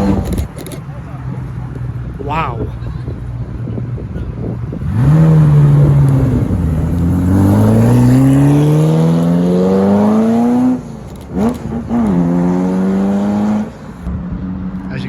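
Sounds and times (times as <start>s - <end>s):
supercar engine accelerating: 3.2s - 15.0s.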